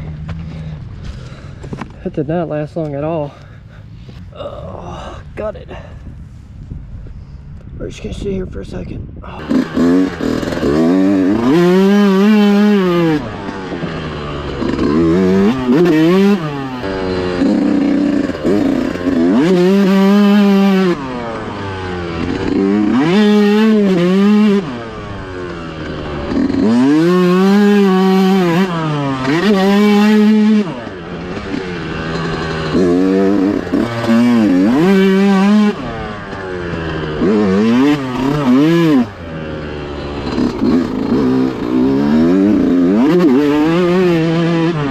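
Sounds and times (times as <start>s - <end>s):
dirt bike engine revving: 9.3s - 44.9s.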